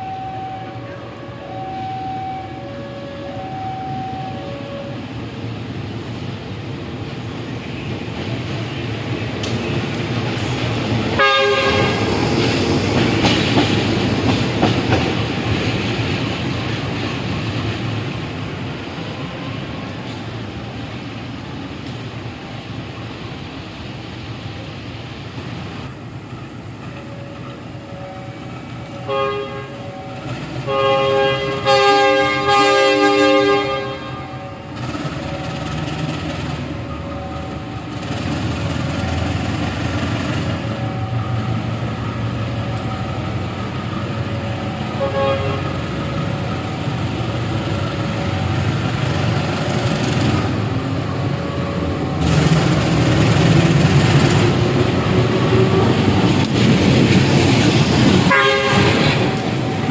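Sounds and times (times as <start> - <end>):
train horn blast: 0.0 - 5.1, 11.2 - 12.2, 27.1 - 35.4, 44.9 - 46.0, 58.2 - 59.9
train rumble and wheel clatter: 0.0 - 59.9.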